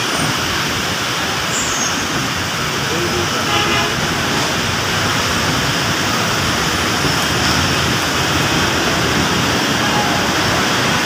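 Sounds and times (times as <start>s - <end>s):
heavy rain pouring: 0.0s - 11.0s
road traffic: 0.0s - 11.0s.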